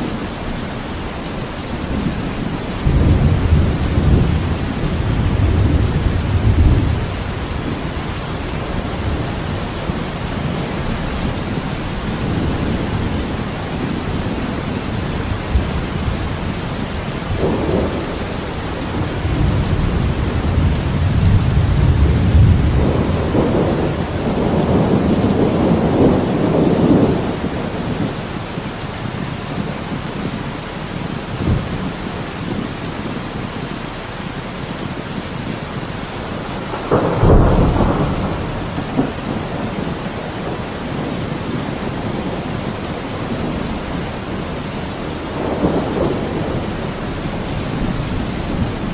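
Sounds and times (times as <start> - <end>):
rolling thunder: 0.0 - 28.4, 31.1 - 32.7, 36.2 - 48.9
rain falling: 0.0 - 48.9
sharp thunderclap: 1.9 - 9.7, 17.2 - 28.2, 31.4 - 31.9, 36.4 - 48.9.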